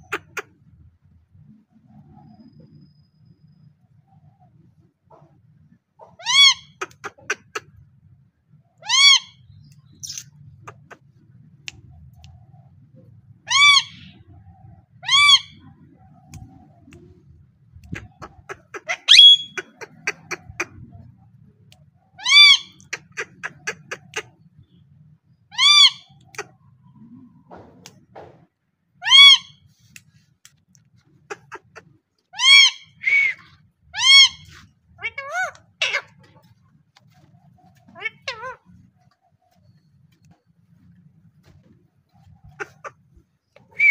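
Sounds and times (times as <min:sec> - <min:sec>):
parrot calling: 0:00.0 - 0:00.5, 0:06.0 - 0:07.7, 0:08.8 - 0:11.0, 0:13.4 - 0:14.3, 0:15.0 - 0:15.7, 0:17.8 - 0:20.8, 0:22.1 - 0:24.4, 0:25.5 - 0:26.6, 0:29.0 - 0:29.6, 0:31.2 - 0:39.8, 0:42.1 - 0:43.9.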